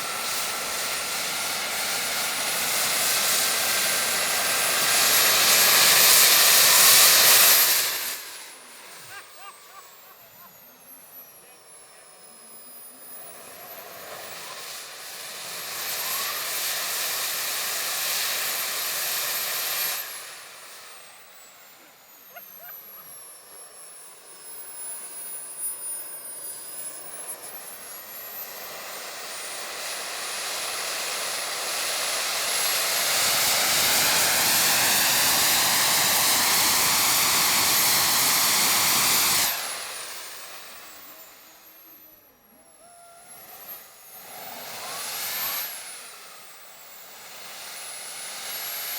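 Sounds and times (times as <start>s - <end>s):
jet turbines whining: 0.0s - 48.9s.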